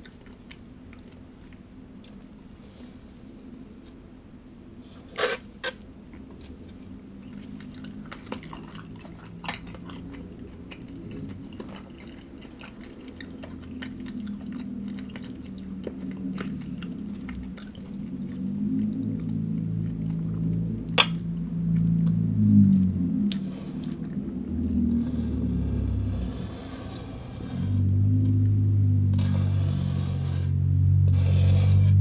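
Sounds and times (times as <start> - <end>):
close chewing of food: 0.0 - 4.0, 4.8 - 32.0
low steady hum: 0.0 - 32.0.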